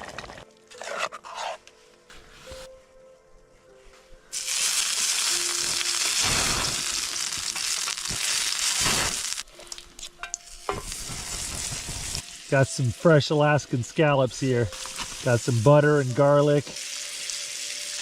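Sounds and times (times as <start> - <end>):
food sizzling in hot oil: 4.3 - 18.0.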